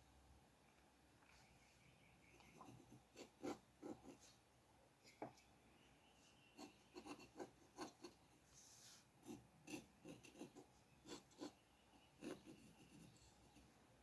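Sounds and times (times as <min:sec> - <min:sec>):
pen strokes scratching on paper: 0:06.5 - 0:11.6, 0:12.2 - 0:13.6.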